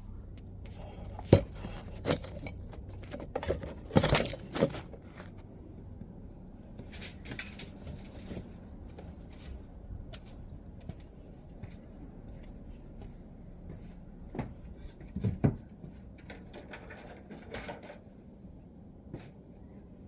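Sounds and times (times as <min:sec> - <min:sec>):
hard pieces clinking and knocking: 0:01.2 - 0:05.3.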